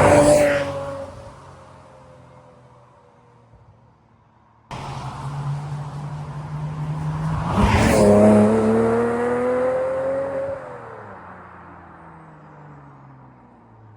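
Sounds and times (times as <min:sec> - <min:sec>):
car engine revving: 0:00.0 - 0:01.2, 0:04.7 - 0:10.8.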